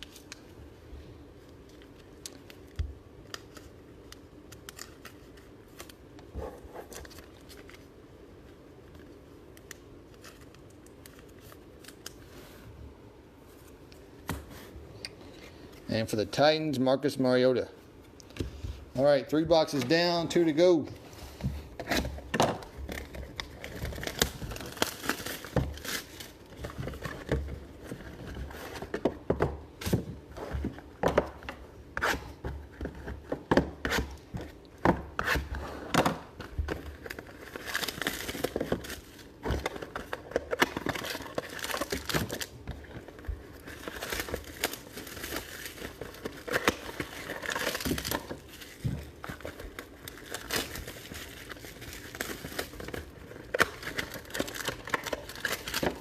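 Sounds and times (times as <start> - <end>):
card packaging crinkling and tearing: 1.6 - 6.2, 6.8 - 8.0, 8.9 - 12.3, 21.6 - 56.0.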